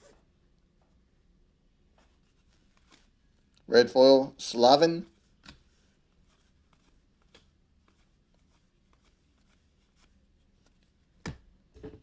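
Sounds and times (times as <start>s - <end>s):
trading cards rustling and clicking: 2.1s - 3.6s, 5.2s - 11.0s.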